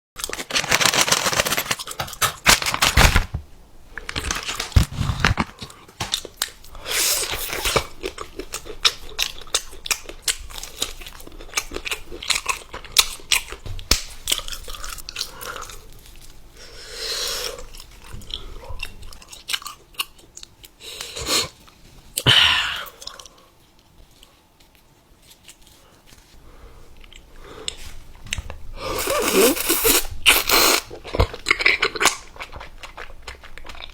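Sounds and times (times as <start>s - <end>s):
crunchy chewing: 4.0s - 13.6s, 22.8s - 33.9s.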